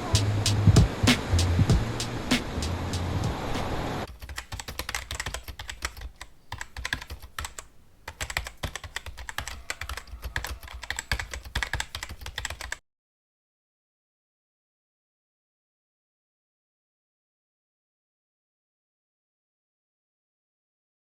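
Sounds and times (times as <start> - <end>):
background music: 0.0 - 3.9
rapid clicking and tapping: 4.1 - 12.8.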